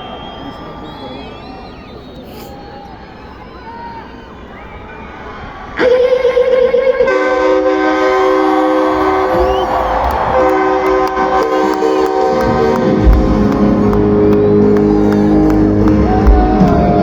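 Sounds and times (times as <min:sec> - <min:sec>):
live band playing: 0:08.3 - 0:17.0
heavy bass and drums: 0:12.5 - 0:17.0.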